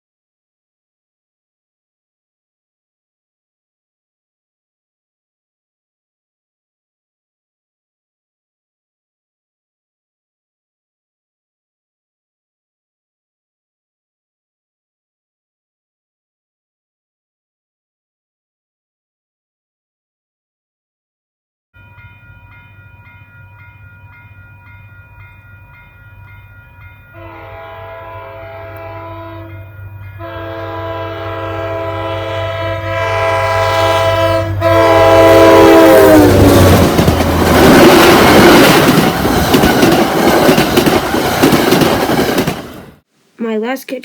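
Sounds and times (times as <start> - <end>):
crossing bell ringing: 21.8 - 42.3
train air horn blasts: 27.2 - 37.4
train wheels clacking: 36.4 - 42.9.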